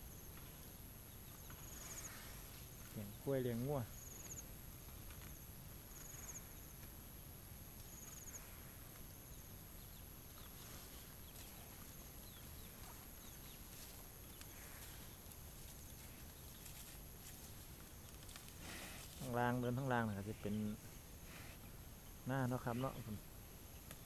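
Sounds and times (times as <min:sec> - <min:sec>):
faint chirps: 0:00.0 - 0:06.9, 0:07.8 - 0:17.0
cricket trills: 0:00.0 - 0:24.0
insects droning: 0:00.0 - 0:24.0.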